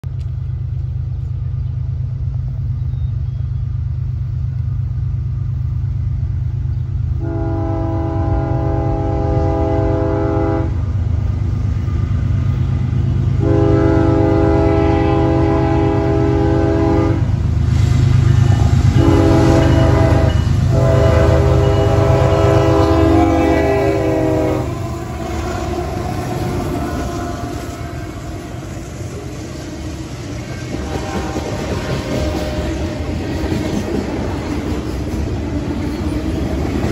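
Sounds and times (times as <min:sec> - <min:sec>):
locomotive engine rumble: 0:00.0 - 0:36.9
locomotive air horn: 0:07.2 - 0:10.8, 0:13.4 - 0:17.3, 0:18.9 - 0:29.1, 0:30.7 - 0:33.0.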